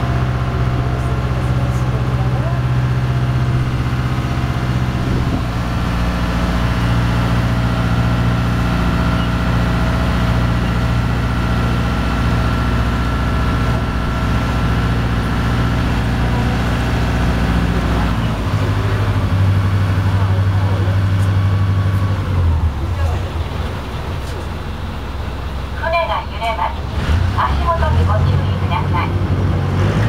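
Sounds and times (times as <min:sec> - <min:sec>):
ferry engine droning: 0:00.0 - 0:30.0.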